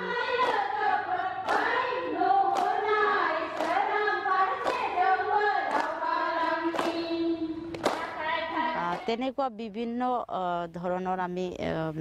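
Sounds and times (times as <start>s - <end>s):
women singing together: 0.0s - 9.3s
clapping in time: 0.4s - 0.6s, 2.5s - 2.8s, 3.6s - 3.8s, 4.6s - 4.9s, 5.7s - 6.0s, 6.7s - 7.0s, 7.7s - 8.2s.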